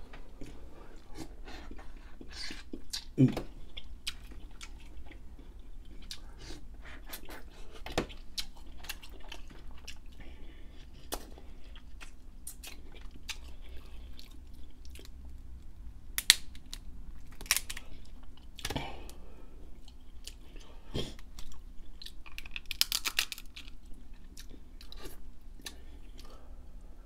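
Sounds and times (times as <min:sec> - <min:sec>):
chewing crab meat: 0:00.3 - 0:26.5
crab shell cracking: 0:16.2 - 0:17.9, 0:22.1 - 0:23.8.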